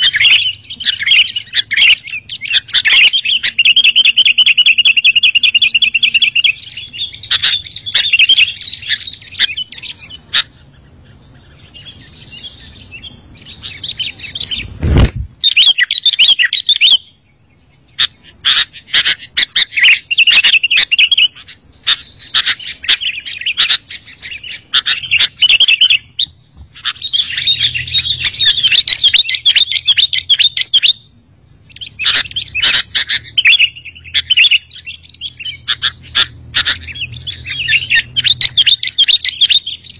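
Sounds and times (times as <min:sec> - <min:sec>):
birds chattering and chirping: 0:00.0 - 0:39.9
loud thump: 0:14.8 - 0:15.4.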